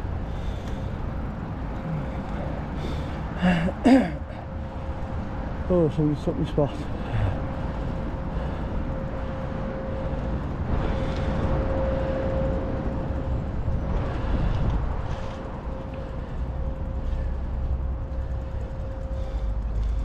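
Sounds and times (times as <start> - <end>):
steady hum: 0.0 - 20.0
bike tyre noise: 6.8 - 20.0
wind rushing over microphone: 6.9 - 19.1.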